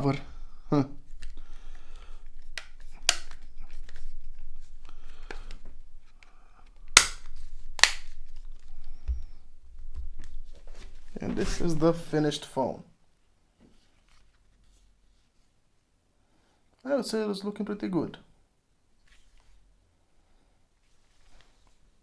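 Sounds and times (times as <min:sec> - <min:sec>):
plastic parts snapping clicks: 0:02.6 - 0:03.4, 0:06.9 - 0:08.1.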